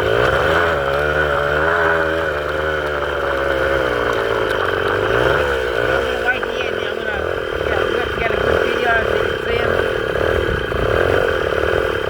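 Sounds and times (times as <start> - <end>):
small engine revving: 0.0 - 12.0.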